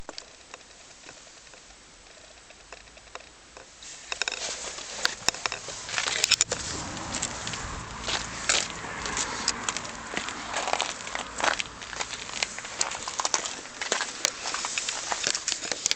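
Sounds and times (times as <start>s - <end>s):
engine ticks and clicks: 0.0s - 15.9s
car engine running rattly: 4.2s - 15.9s.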